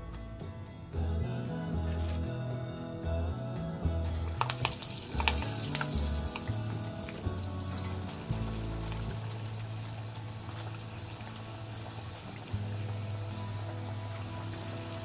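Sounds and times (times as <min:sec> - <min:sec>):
background music: 0:00.0 - 0:15.0
food frying in hot oil: 0:04.4 - 0:15.0.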